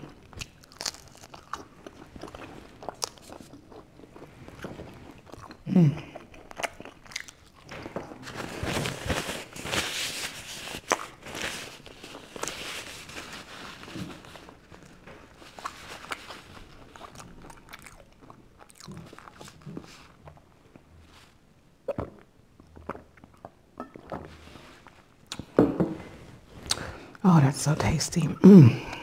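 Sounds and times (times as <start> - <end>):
chewing crusty bread: 0.0 - 25.6
paper napkin rustling: 8.2 - 17.0.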